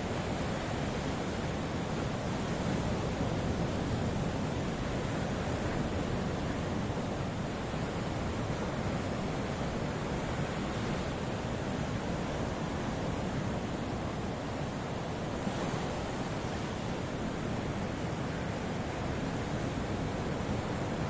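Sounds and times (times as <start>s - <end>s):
ocean waves washing: 0.0s - 21.0s.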